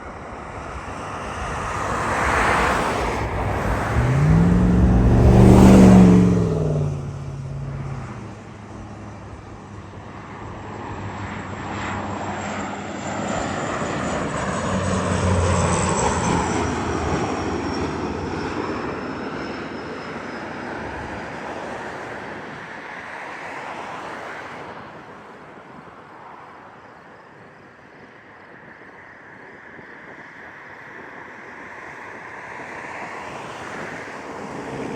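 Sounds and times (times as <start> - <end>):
high engine whine: 0.0 - 22.3
turboprop plane passing overhead: 0.0 - 34.9.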